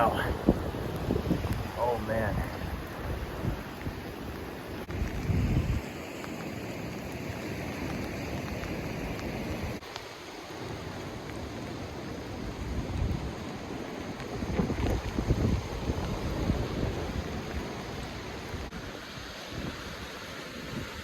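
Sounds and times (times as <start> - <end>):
wind gusting on microphone: 0.0 - 6.0, 12.3 - 21.0
heavy rain: 0.0 - 21.0
ocean surf: 0.0 - 21.0.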